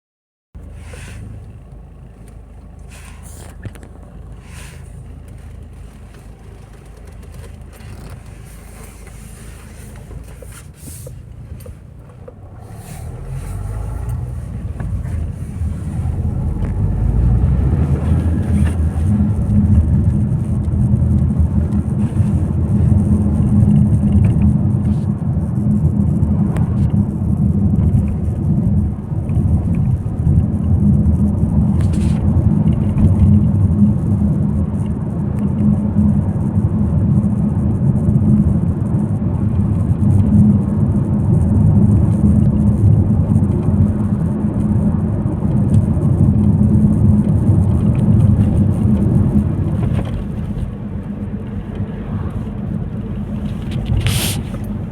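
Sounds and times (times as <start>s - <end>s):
vehicle low rumble: 0.6s - 54.9s.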